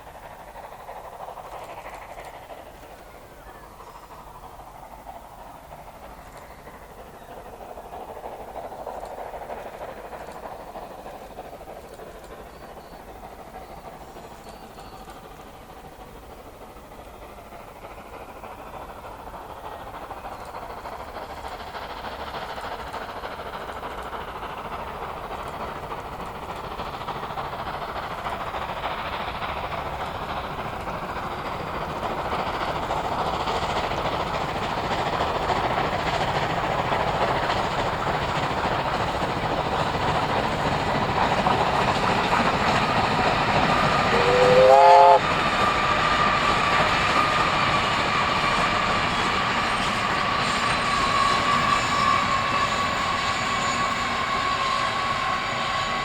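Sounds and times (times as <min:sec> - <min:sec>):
steam train running: 0:00.0 - 0:56.0
steam whistle blast: 0:44.0 - 0:45.4.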